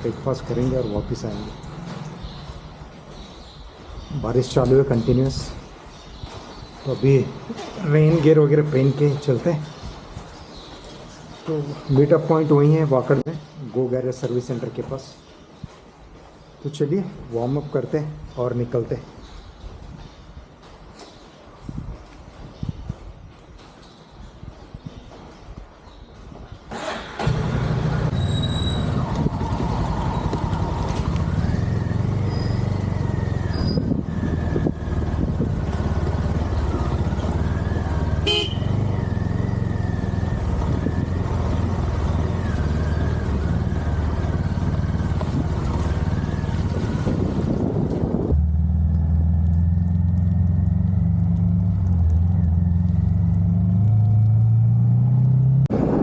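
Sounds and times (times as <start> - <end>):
motorcycle engine starting and idling: 26.7 - 55.6.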